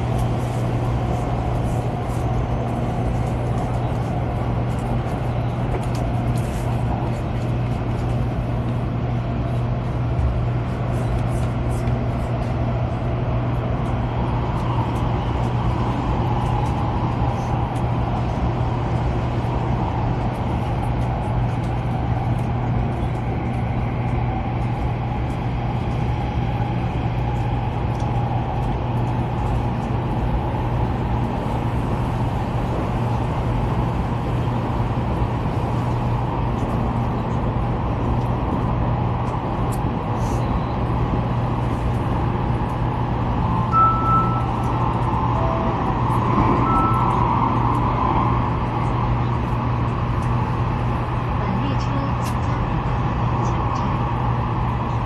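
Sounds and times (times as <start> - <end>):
train interior running hum: 0.0 - 55.0
faint short beeps: 43.8 - 44.8.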